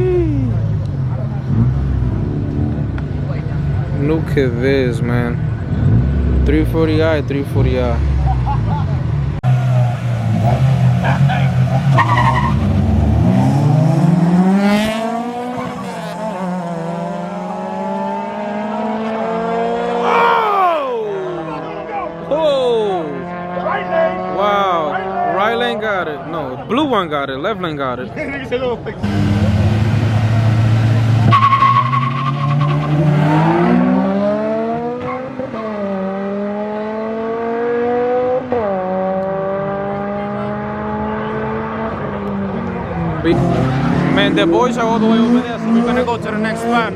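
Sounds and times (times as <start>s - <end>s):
racing cars accelerating hard: 7.6s - 25.8s, 29.0s - 46.9s.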